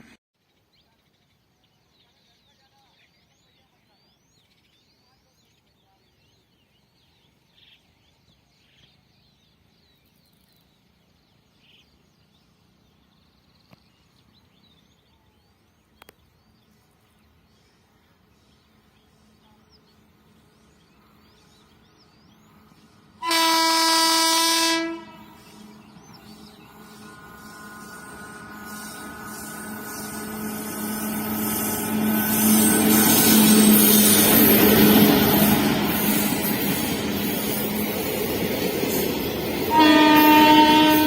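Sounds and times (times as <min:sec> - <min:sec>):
train horn blast: 0:23.2 - 0:35.9, 0:39.6 - 0:41.0.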